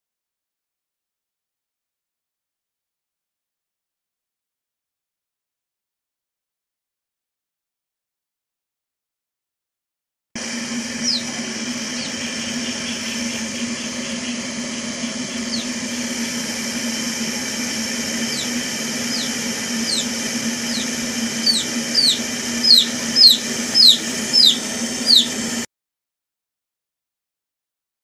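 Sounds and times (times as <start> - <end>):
kettle heating water: 10.4 - 25.6
high falling chirps: 17.8 - 25.6.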